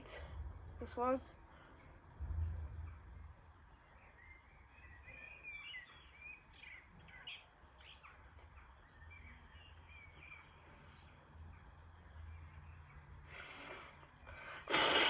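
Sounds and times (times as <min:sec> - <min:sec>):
low steady rumble: 0:00.0 - 0:04.9
faint birdsong: 0:00.0 - 0:15.0.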